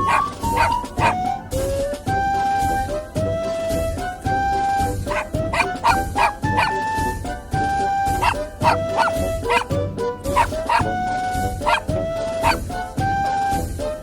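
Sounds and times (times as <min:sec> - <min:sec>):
puppy barking and yipping: 0:00.0 - 0:01.5, 0:05.0 - 0:07.4, 0:08.0 - 0:11.0, 0:11.6 - 0:12.8
background music with held notes: 0:00.0 - 0:14.0.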